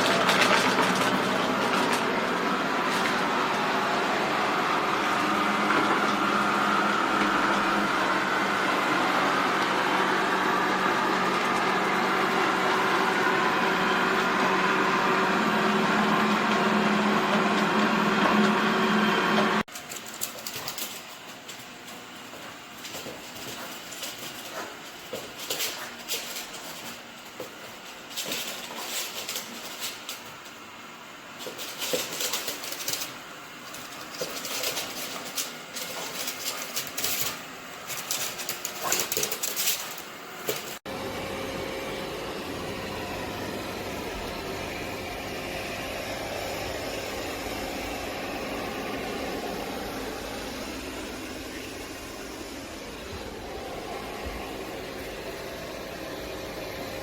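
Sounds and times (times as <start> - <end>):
robot vacuum clattering and brushing: 0.0 - 3.3, 19.7 - 30.6, 31.4 - 40.8
whirring motor hum: 0.0 - 57.0.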